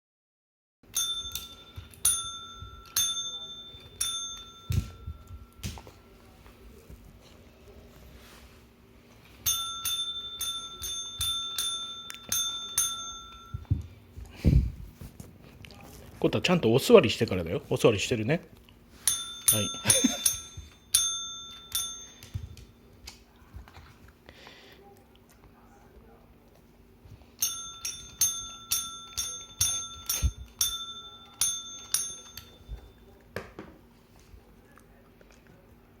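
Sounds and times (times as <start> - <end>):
small metal bell ringing: 0.9 - 5.9, 9.4 - 13.9, 19.0 - 22.8, 27.4 - 33.2.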